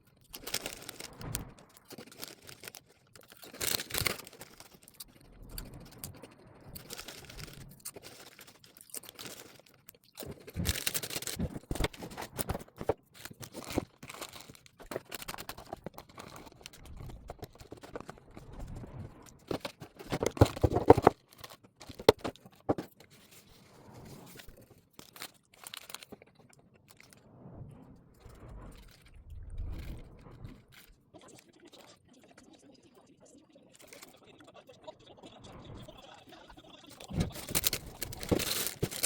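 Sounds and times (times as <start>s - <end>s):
objects clicking and knocking: 0.0s - 23.3s, 37.0s - 39.0s
scrapes and clatter: 0.0s - 32.0s, 36.9s - 39.0s.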